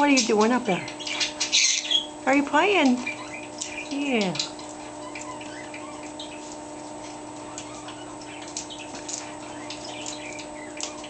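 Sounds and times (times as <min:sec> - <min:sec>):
steady background hum: 0:00.0 - 0:11.0
parrot clicks and chirps: 0:02.8 - 0:06.6, 0:07.4 - 0:11.0.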